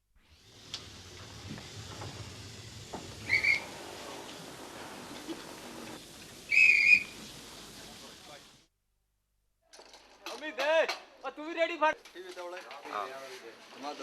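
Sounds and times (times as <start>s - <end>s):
street market ambience hiss: 0.2s - 8.7s, 11.2s - 14.0s
shrill whistle-like calls: 3.2s - 3.8s, 6.5s - 7.2s.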